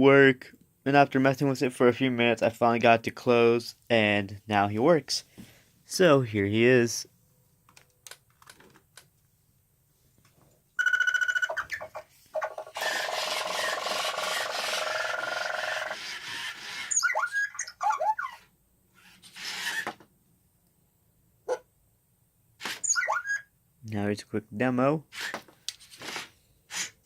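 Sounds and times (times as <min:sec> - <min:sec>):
gliding robotic chirps: 0:10.8 - 0:18.4, 0:22.8 - 0:23.4
toy robot pulsing beep: 0:10.8 - 0:18.4, 0:22.8 - 0:23.4
loud electronic buzzing: 0:12.6 - 0:17.0.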